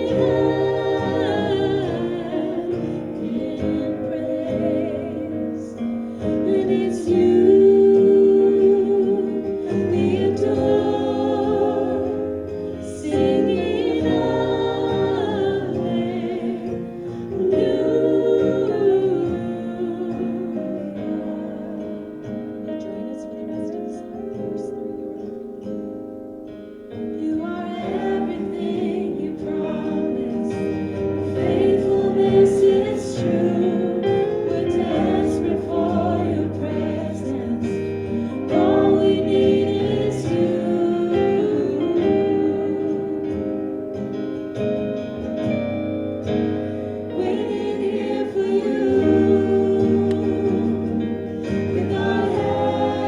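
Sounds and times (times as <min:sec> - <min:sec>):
group singing worship song: 0:00.0 - 0:53.0.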